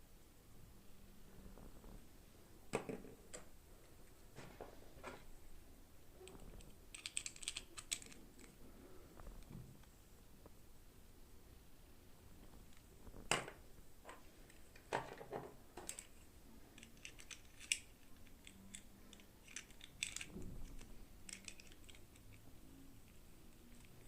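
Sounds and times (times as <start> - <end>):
plastic toy pieces clicking: 6.9 - 8.6, 16.8 - 22.4.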